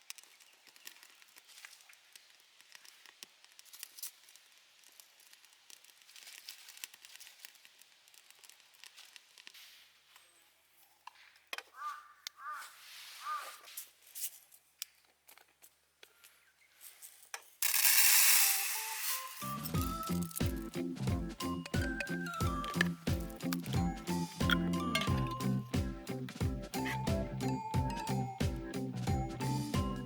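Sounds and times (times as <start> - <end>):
crackling and small clicks: 0.0 - 9.6
short bird calls: 11.7 - 13.8.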